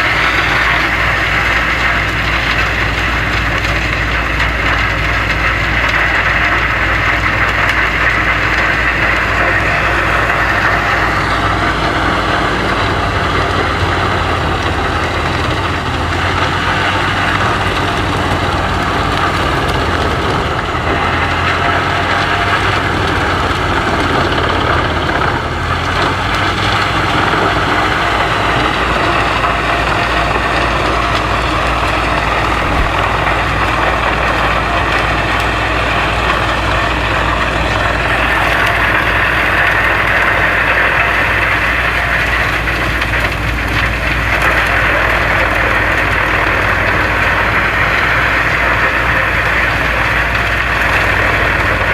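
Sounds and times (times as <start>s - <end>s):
wood chipper engine droning: 0.0s - 51.9s.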